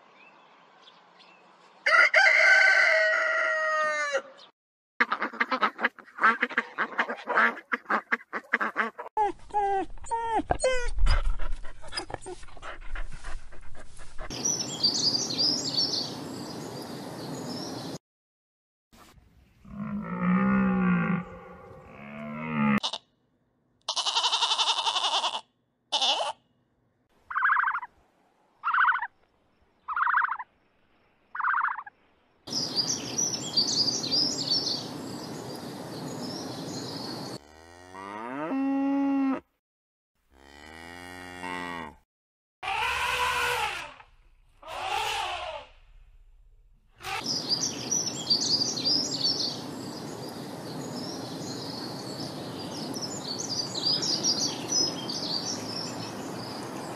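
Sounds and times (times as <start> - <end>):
dog panting: 10.9 - 14.4
steady outdoor hiss: 12.7 - 18.0, 32.0 - 37.4, 47.0 - 56.9
birds chirping: 14.4 - 18.0, 32.5 - 37.4, 47.0 - 56.9
long pitch-bending calls: 27.3 - 27.9
short repeated animal calls: 44.6 - 45.7.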